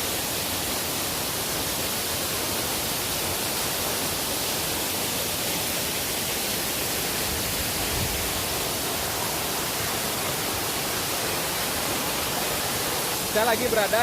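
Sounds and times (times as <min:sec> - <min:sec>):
waterfall pouring down: 0:00.0 - 0:14.0.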